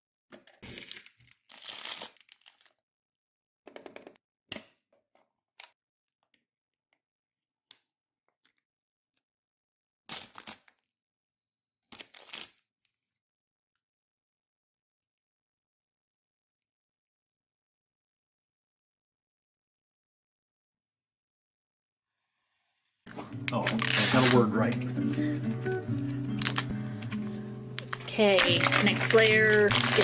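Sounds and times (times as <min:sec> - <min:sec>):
packaging tearing and crinkling: 0:00.6 - 0:02.8, 0:10.1 - 0:10.8, 0:11.9 - 0:12.6, 0:23.1 - 0:24.8, 0:26.3 - 0:26.8, 0:27.7 - 0:30.0.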